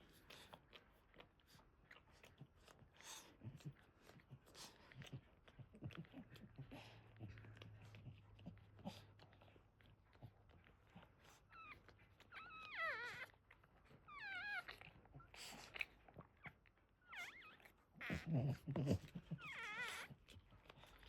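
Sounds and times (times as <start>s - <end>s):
puppies crying: 11.5s - 15.5s, 17.0s - 20.4s.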